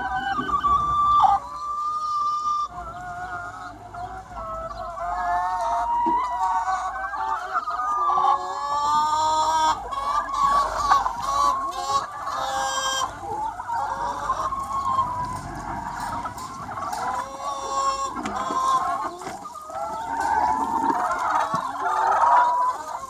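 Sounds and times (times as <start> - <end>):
hens clucking: 0.0 - 23.0.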